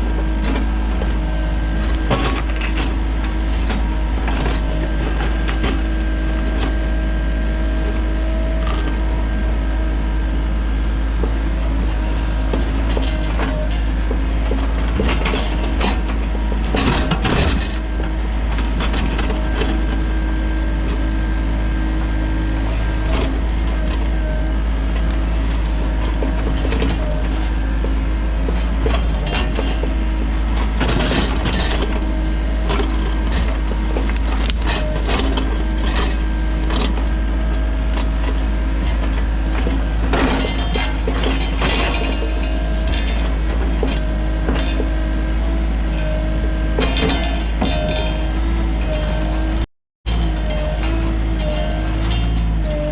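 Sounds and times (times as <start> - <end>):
excavator diesel engine running: 0.0 - 52.9
metal parts knocking and clanking: 34.1 - 34.8.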